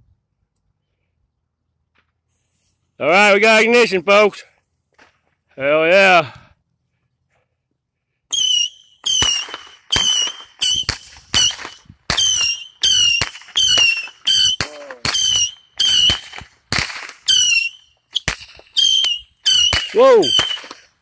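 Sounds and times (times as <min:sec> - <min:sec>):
firework pops with whistles: 0:08.3 - 0:21.0.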